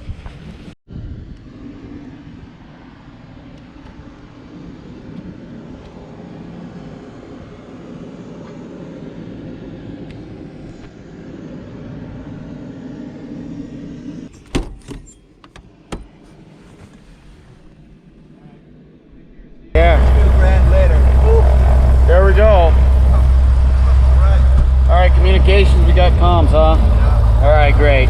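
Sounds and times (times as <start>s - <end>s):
low engine rumble: 15.2s - 28.0s.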